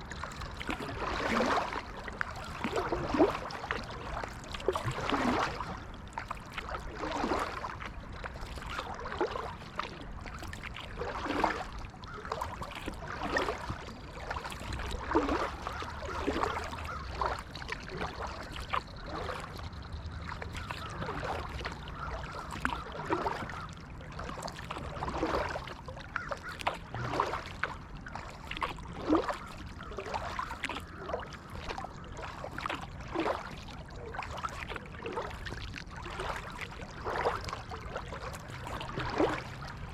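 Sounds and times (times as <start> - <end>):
paddle splashing in water: 0.0 - 39.9
low steady rumble: 16.7 - 24.2, 36.9 - 39.9.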